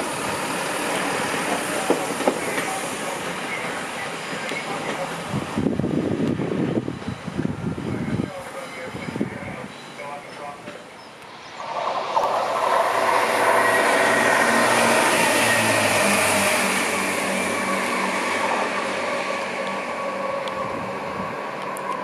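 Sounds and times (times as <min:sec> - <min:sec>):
diesel train engine: 0:00.0 - 0:22.0
wheels rumbling on rails: 0:10.2 - 0:22.0.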